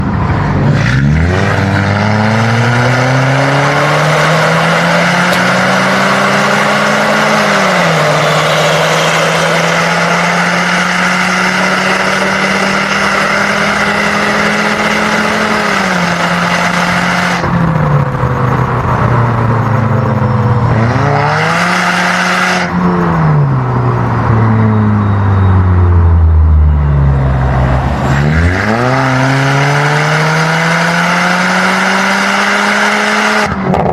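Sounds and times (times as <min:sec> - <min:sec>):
car engine revving hard: 0:00.0 - 0:19.4, 0:20.5 - 0:24.3, 0:27.4 - 0:33.9.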